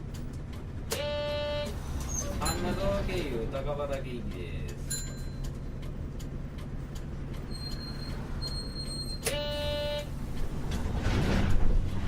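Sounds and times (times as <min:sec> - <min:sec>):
electronic buzzer tone: 0:01.0 - 0:01.7, 0:09.3 - 0:10.1.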